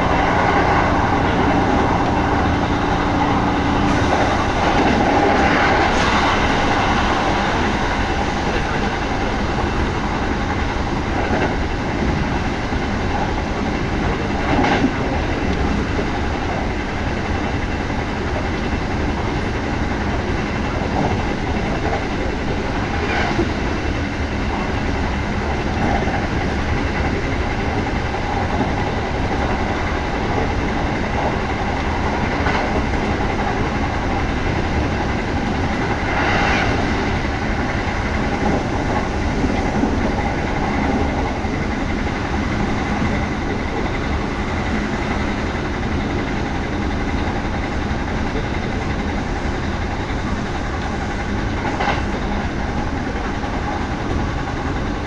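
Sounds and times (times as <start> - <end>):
rumble of wheels on rail: 0.0 - 55.0.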